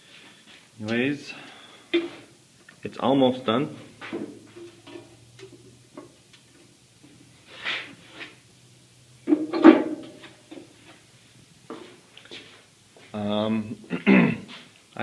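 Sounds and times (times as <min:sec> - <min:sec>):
faint low steady hum: 0:00.0 - 0:15.0
rustle: 0:03.8 - 0:08.5
clunk and rattle: 0:09.3 - 0:10.7.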